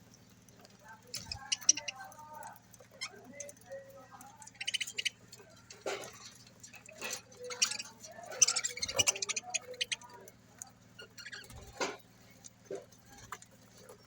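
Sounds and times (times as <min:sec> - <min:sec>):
budgerigars chattering: 0:01.1 - 0:02.1, 0:04.4 - 0:10.3, 0:11.0 - 0:12.0.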